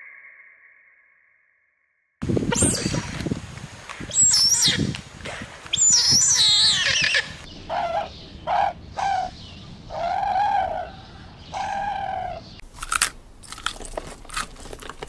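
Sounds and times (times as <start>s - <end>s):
animal squawking cries: 5.8s - 12.5s.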